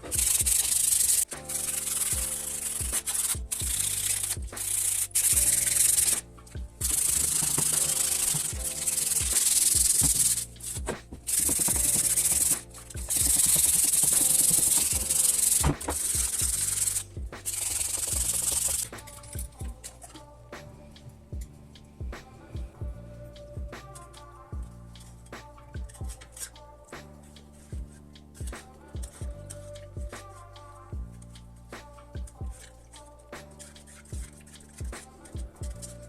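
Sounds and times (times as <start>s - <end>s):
abrasive sanding scraping hiss: 0.0s - 19.4s.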